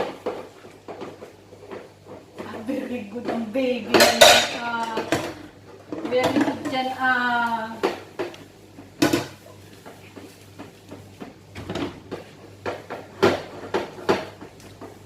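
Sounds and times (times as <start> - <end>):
dishes clinking in a sink: 3.2 - 6.8.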